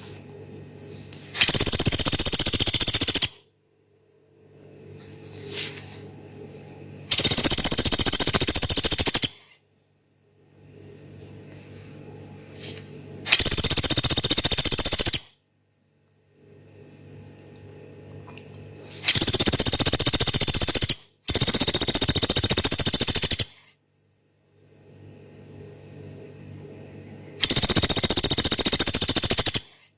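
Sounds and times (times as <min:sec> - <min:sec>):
woodpecker rattling trills: 0:01.4 - 0:03.4, 0:07.1 - 0:09.5, 0:13.3 - 0:15.3, 0:19.1 - 0:23.6, 0:27.4 - 0:29.8.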